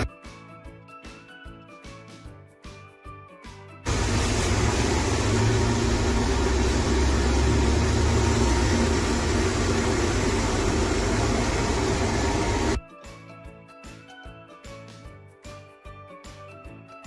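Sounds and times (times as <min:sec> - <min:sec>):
low hum: 0:03.9 - 0:12.8
robot vacuum suction fan: 0:03.9 - 0:12.8.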